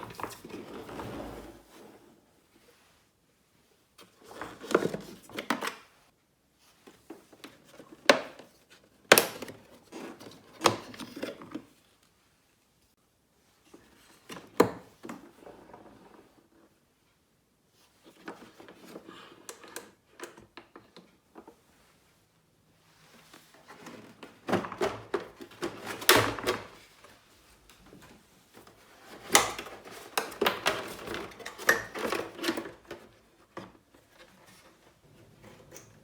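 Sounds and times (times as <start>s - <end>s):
plastic scraping and rubbing: 0.0s - 2.2s
plastic parts clicking and knocking: 27.9s - 34.3s.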